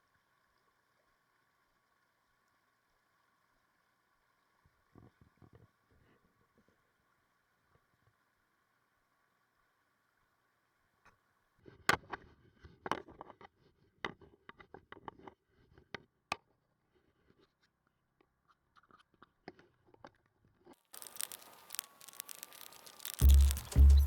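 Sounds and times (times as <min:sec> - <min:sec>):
loud hissing: 0:21.0 - 0:24.0.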